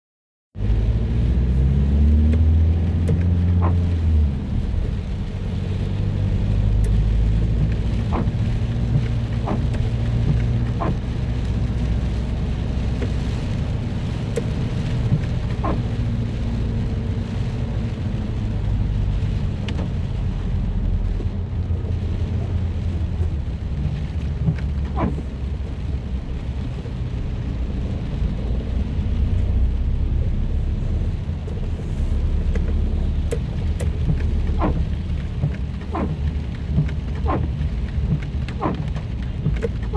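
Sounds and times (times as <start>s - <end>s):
car engine and road rumble: 0.5s - 39.9s
rain and wet tyres hiss: 0.6s - 39.9s.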